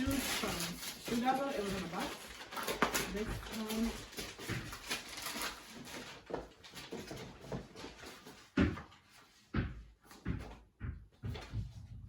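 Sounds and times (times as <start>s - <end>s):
packaging rustling: 0.0s - 8.5s.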